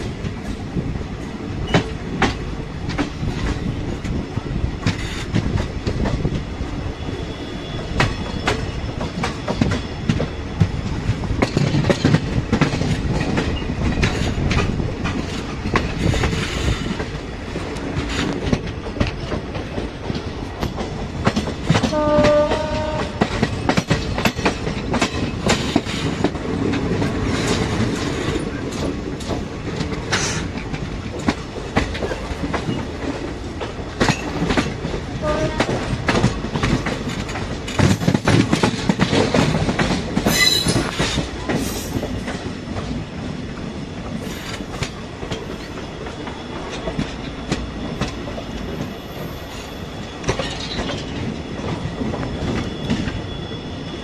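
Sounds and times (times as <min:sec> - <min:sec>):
train wheels clicking over rail joints: 0:00.0 - 0:53.2
train horn: 0:21.8 - 0:23.5, 0:35.2 - 0:36.0.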